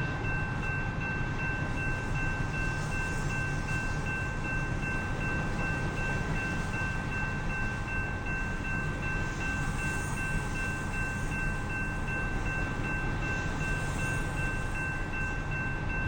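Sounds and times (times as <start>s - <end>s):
grade crossing bell ringing: 0.0s - 16.0s
train rumbling past: 0.0s - 16.0s.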